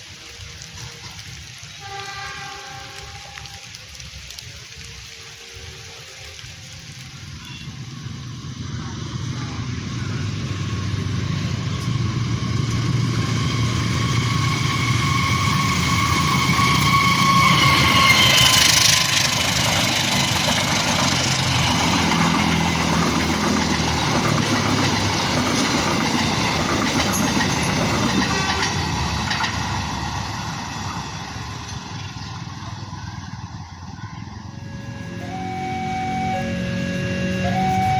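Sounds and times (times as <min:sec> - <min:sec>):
diesel train passing: 0:00.0 - 0:37.9
steady high-pitched tone: 0:34.4 - 0:37.9.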